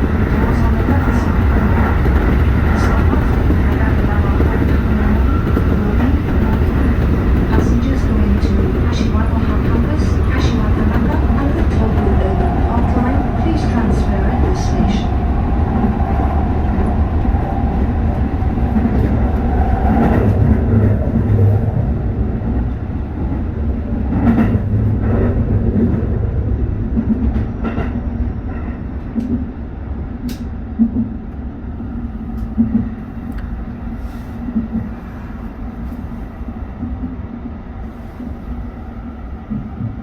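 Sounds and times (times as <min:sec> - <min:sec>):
train rumble: 0:00.0 - 0:40.0.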